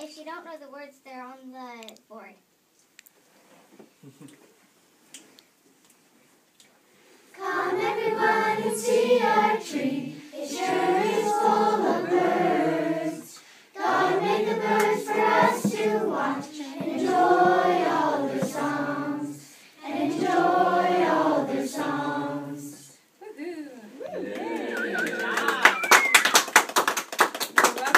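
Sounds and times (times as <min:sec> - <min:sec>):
children singing: 0:07.4 - 0:22.9.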